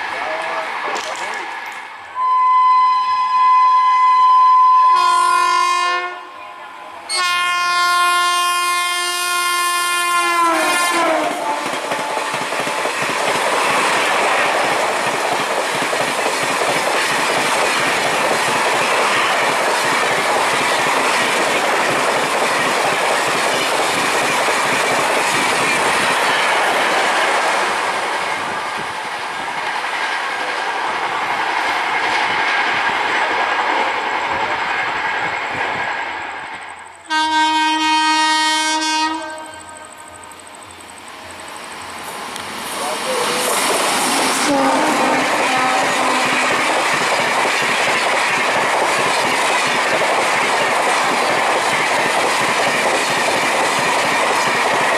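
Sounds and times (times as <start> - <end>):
clickety-clack over rail joints: 0.0 - 1.9, 11.0 - 27.2, 42.0 - 54.9
train wheels rushing on rails: 0.0 - 2.2, 6.7 - 54.9
train horn blasts: 2.2 - 6.5, 7.1 - 12.2, 37.1 - 40.3, 44.4 - 46.6.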